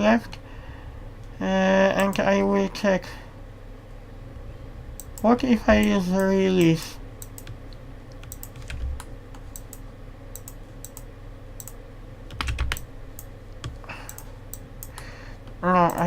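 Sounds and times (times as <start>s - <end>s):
steady low hum: 0.0s - 16.0s
computer keys clicking: 2.0s - 2.3s, 5.0s - 16.0s.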